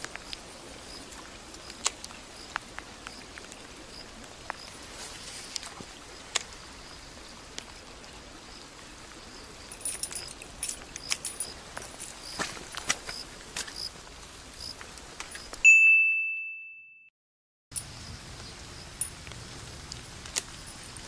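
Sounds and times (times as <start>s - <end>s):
faint insect chirping: 0.1s - 1.2s, 2.3s - 13.9s.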